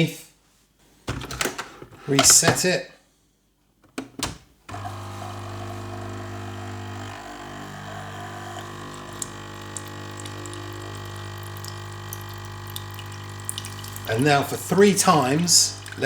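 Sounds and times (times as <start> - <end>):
water pump buzzing: 4.7 - 16.0.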